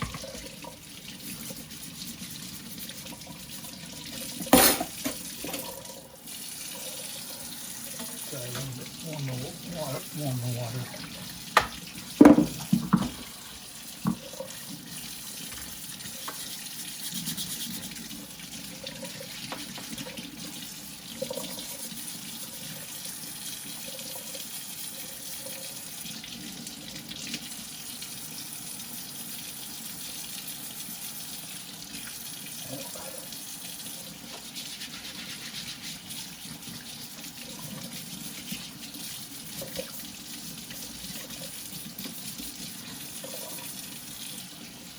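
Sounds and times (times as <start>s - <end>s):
tap water running into sink: 0.0s - 44.9s
antlers washed by hand: 34.2s - 44.8s.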